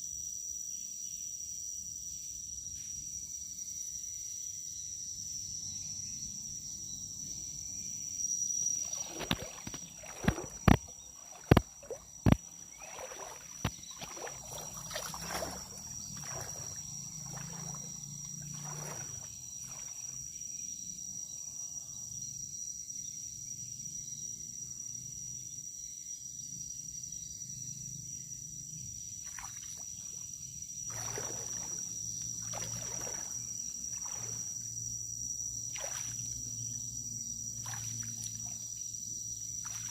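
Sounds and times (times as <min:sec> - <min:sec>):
high-pitched insect trill: 0:00.0 - 0:39.9
water splashing: 0:08.8 - 0:20.2, 0:30.9 - 0:34.8, 0:35.6 - 0:36.7, 0:37.6 - 0:38.7, 0:39.6 - 0:39.9.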